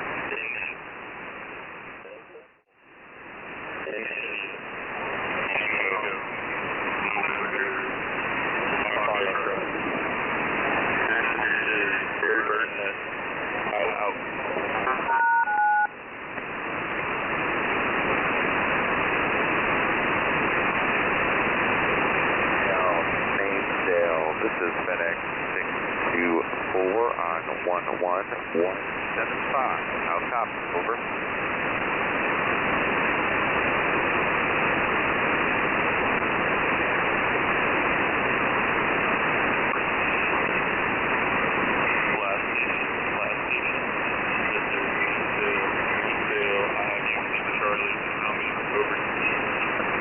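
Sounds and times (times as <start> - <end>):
radio static hiss: 0.0 - 50.0.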